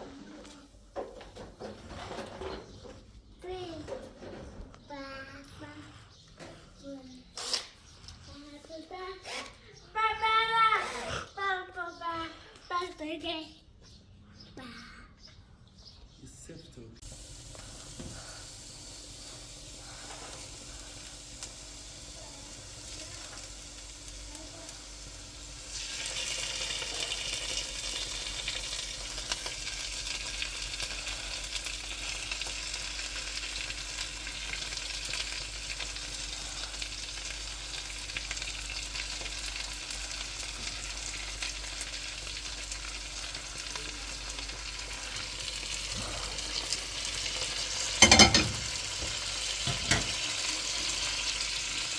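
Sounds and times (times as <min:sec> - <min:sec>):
food sizzling in a pan: 0:17.0 - 0:51.9.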